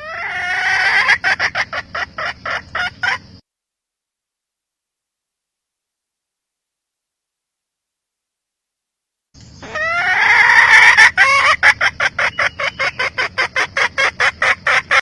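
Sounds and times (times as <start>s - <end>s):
hen calling: 0.0s - 3.3s, 9.4s - 15.0s
hen clucking: 0.0s - 3.4s, 9.6s - 15.0s.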